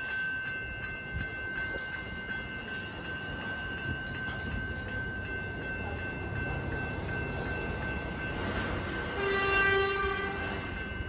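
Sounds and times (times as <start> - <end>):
electric train rumbling: 0.0 - 11.0
train horn: 9.1 - 10.7.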